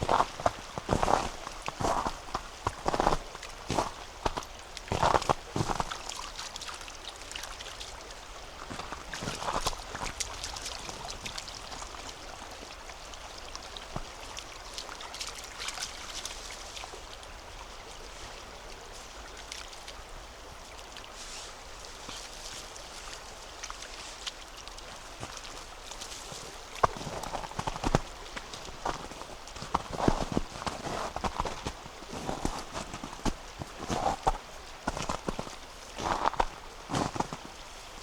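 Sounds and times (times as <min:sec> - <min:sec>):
footsteps on compacted snow: 0:00.0 - 0:05.9, 0:26.8 - 0:37.5
mountain river rushing: 0:00.0 - 0:14.0, 0:25.0 - 0:38.0.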